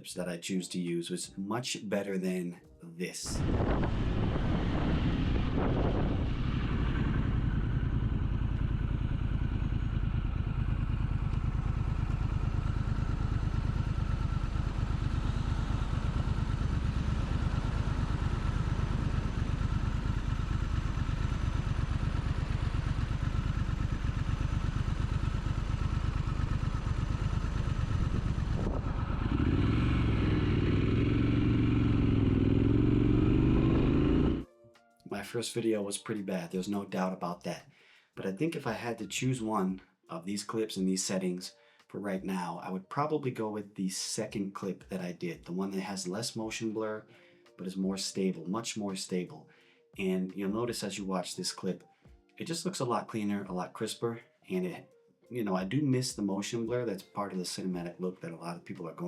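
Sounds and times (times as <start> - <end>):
motorcycle engine running and revving: 3.4 - 34.4.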